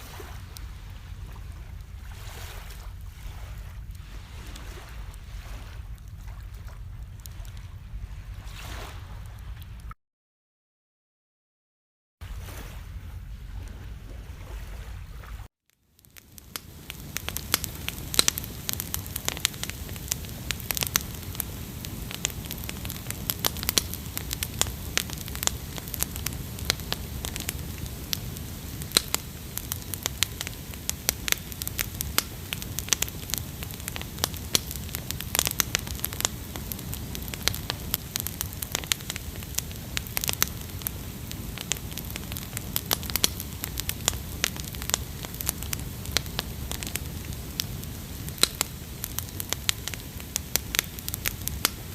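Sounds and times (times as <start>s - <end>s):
low rumble of flame: 0.0s - 9.9s, 12.2s - 51.9s
campfire crackling and popping: 5.9s - 8.0s, 15.7s - 51.9s.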